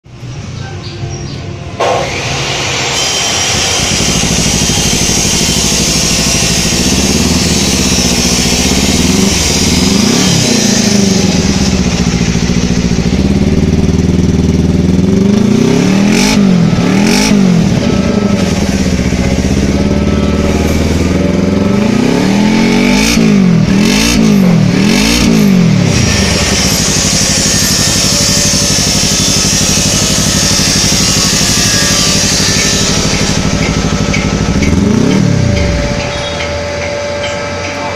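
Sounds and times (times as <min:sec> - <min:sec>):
motorcycle engine idling and revving: 0:00.1 - 0:37.9.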